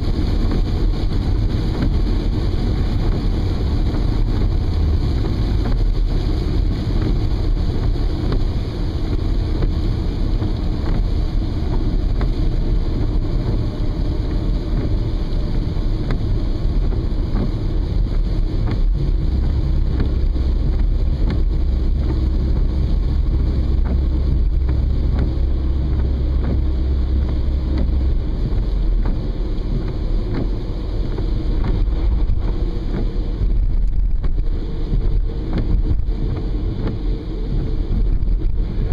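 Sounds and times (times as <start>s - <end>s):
car driving in rain: 0.0s - 38.9s.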